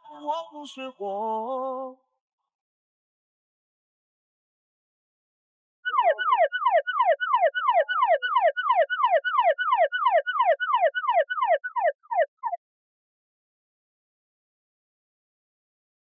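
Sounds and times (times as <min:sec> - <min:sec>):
repeated falling electronic tone: 0:05.9 - 0:12.6.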